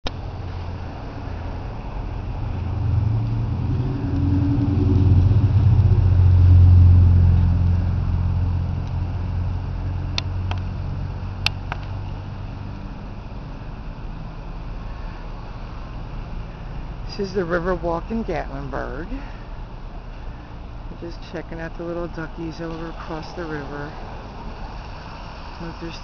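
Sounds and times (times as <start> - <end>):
vehicle engine passing by: 0.1 - 26.0.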